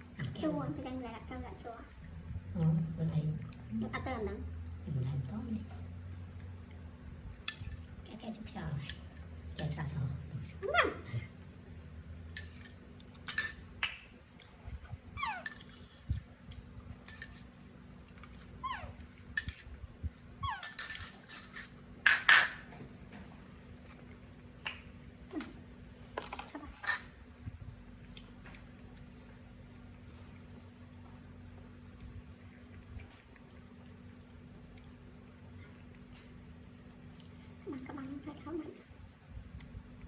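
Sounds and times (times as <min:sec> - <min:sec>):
dishes and utensils clinking: 0:12.3 - 0:13.8, 0:17.0 - 0:17.6, 0:19.3 - 0:19.8, 0:20.6 - 0:22.8, 0:26.2 - 0:27.3.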